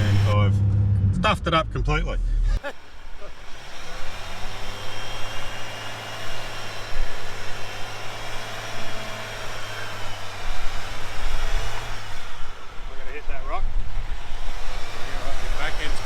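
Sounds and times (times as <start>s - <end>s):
vehicle engine running at low revs: 0.0s - 2.7s.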